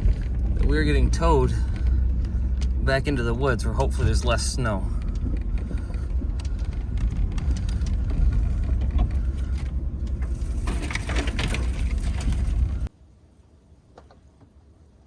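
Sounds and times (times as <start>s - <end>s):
truck low rumble: 0.0s - 12.9s
knocks and rattles: 3.8s - 12.9s.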